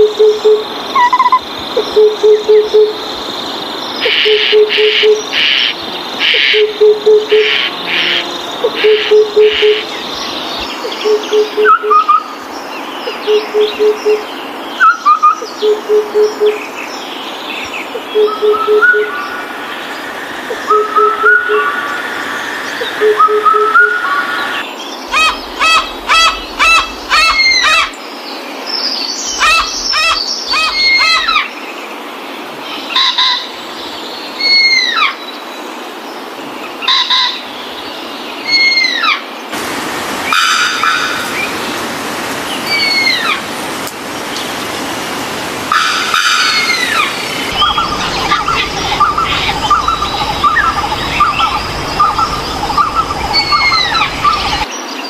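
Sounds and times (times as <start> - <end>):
other birds calling: 18.3 - 28.0, 29.2 - 31.5, 44.2 - 54.7
high bird chirps: 25.1 - 28.0, 29.2 - 31.3, 46.4 - 54.7.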